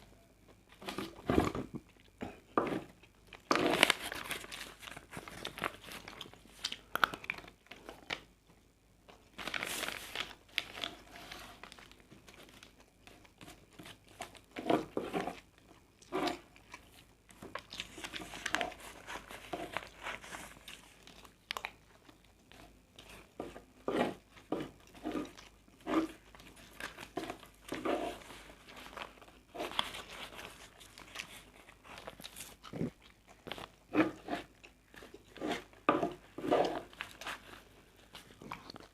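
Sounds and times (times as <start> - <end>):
person chewing: 29.4 - 37.2.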